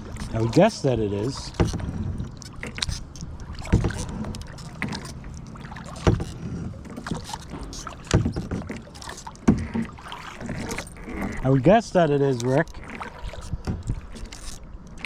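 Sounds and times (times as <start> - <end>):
paddle strokes splashing and knocking: 0.0 - 15.0.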